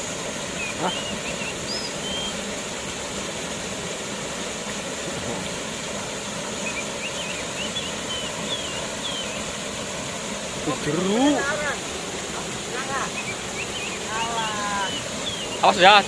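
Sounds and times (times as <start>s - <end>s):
waterfall roaring: 0.0s - 16.0s
faint high chirps: 0.6s - 2.4s, 6.6s - 9.5s.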